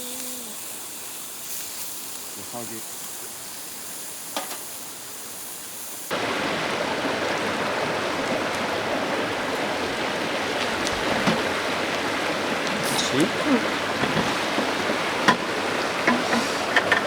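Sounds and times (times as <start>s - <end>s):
river flowing over stones: 6.1s - 17.0s.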